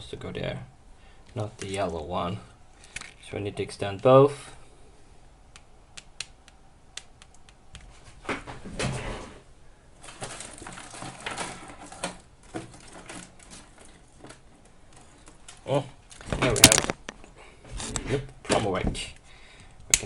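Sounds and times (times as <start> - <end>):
scraping and rustling: 7.8 - 18.4.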